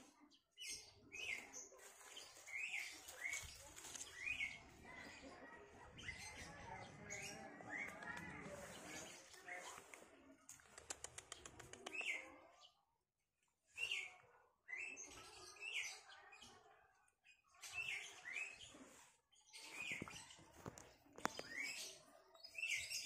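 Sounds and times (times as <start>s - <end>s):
small bird chirping: 0.0s - 12.5s, 17.3s - 23.0s
quick run of ticks: 9.9s - 12.2s.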